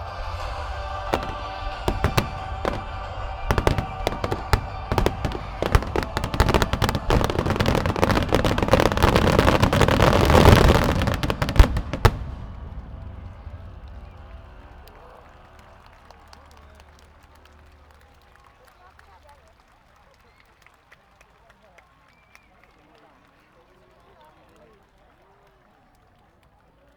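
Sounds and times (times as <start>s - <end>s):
fireworks bursting: 0.0s - 15.8s.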